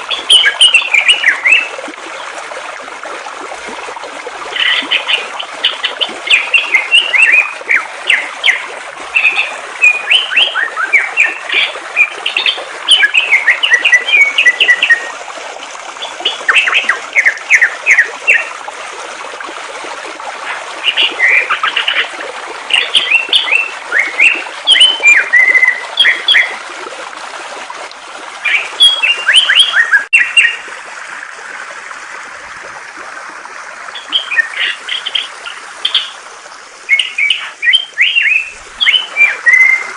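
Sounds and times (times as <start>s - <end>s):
flowing water rushing: 0.0s - 39.9s
songbird chirping and whistling: 9.2s - 15.1s, 22.7s - 26.5s, 28.5s - 30.6s, 34.0s - 35.3s, 36.9s - 39.9s.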